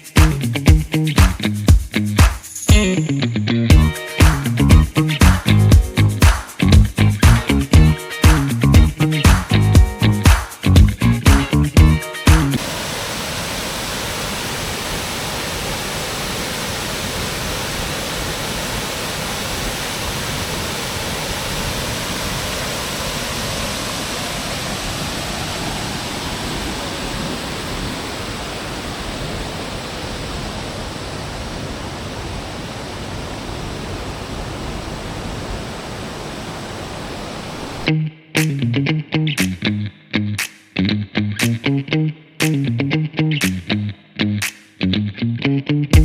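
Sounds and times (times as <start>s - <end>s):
waterfall rushing: 12.6s - 37.9s.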